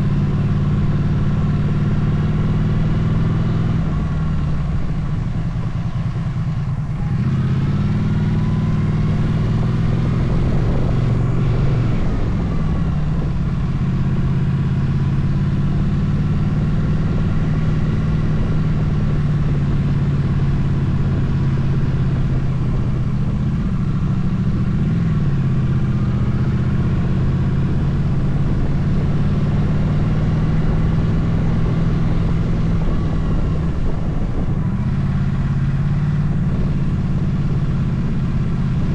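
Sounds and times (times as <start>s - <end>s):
motorcycle engine revving: 0.0s - 38.9s
wind noise rushing: 9.1s - 14.4s, 27.5s - 38.1s.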